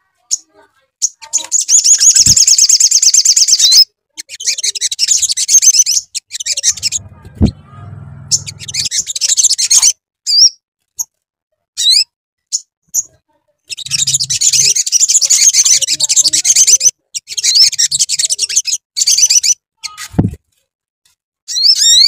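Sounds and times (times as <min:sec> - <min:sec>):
bird chirps: 0:01.0 - 0:10.5, 0:13.7 - 0:20.0
bird twittering song: 0:13.7 - 0:19.6.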